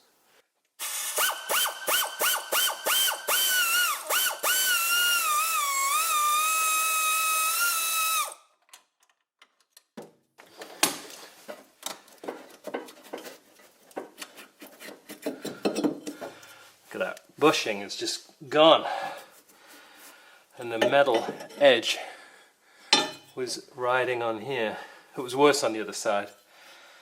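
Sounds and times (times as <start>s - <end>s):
power tool motor whining: 0.8s - 8.4s.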